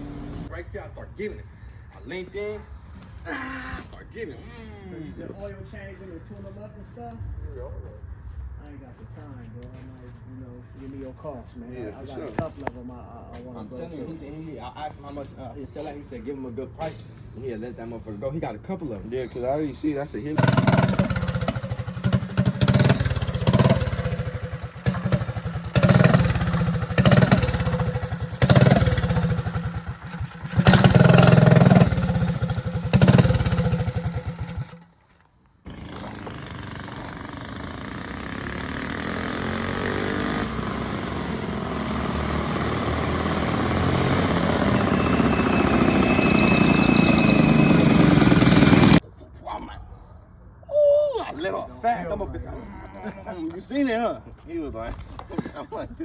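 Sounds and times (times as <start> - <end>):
steady engine sound: 0.0 - 0.5, 20.4 - 35.0, 35.7 - 49.0
small engine revving in blips: 20.4 - 34.8, 35.7 - 49.0.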